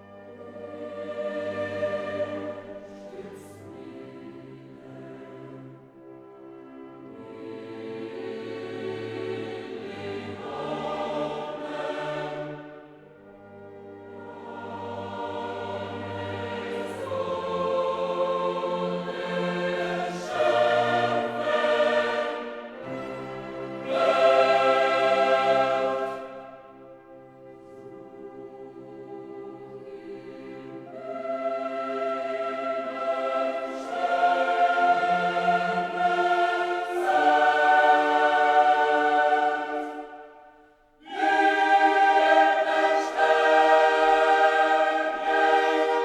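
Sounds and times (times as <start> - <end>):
choir singing held chords: 0.0 - 46.0.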